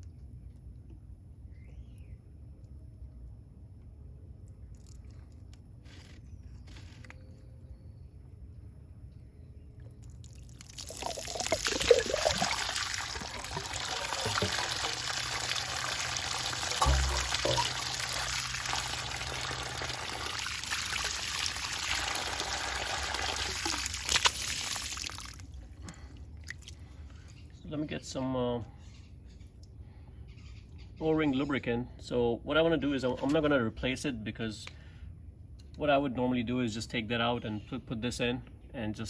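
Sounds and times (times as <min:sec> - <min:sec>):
water gushing from valve: 0:10.4 - 0:25.5.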